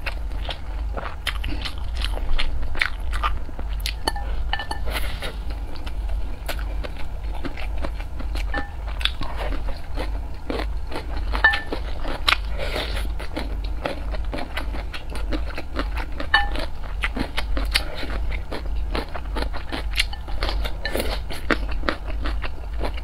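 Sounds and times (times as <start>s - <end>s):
wet chewing and crunching: 0.0s - 23.0s
chopsticks clinking against dishes: 4.1s - 5.0s, 11.4s - 11.8s, 16.3s - 16.7s.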